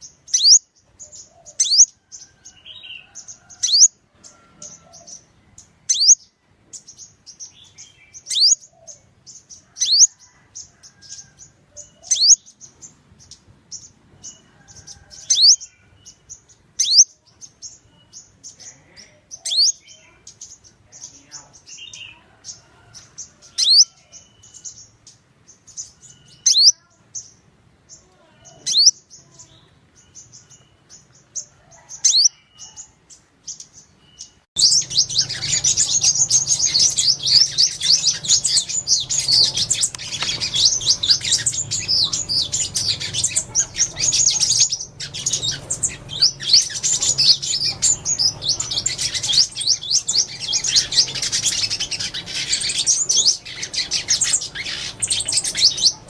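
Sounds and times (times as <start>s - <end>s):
faint bird twittering: 0.0s - 56.0s
flock of birds chattering: 0.0s - 56.0s
sharp high bird calls: 0.0s - 56.0s.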